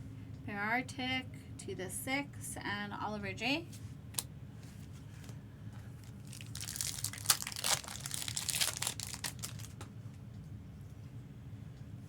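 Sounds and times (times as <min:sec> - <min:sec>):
foil wrapper crinkling: 0:06.0 - 0:09.9.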